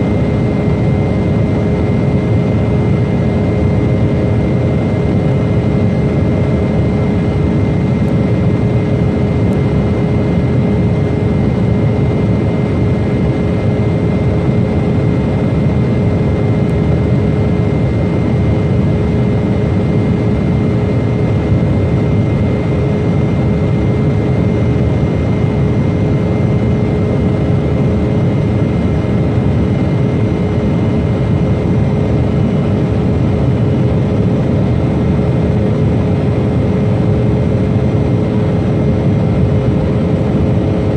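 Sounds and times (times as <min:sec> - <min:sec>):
jet airliner engines running: 0:00.0 - 0:40.9.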